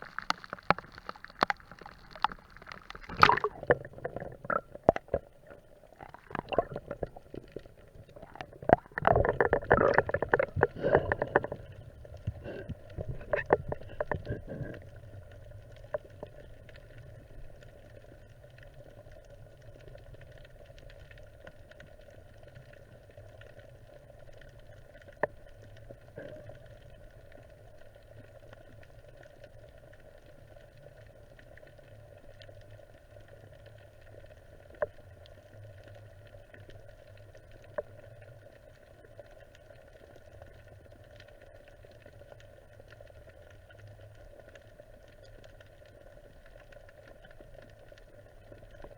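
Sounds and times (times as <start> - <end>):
muffled underwater rush: 0.0 - 19.0
faint crackle: 0.0 - 48.9.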